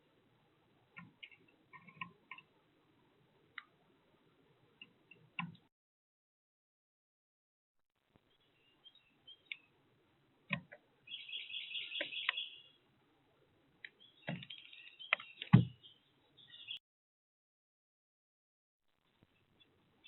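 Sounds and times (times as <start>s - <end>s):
small birds chirping: 8.2s - 9.8s, 10.5s - 12.9s, 13.8s - 16.8s, 19.1s - 20.0s.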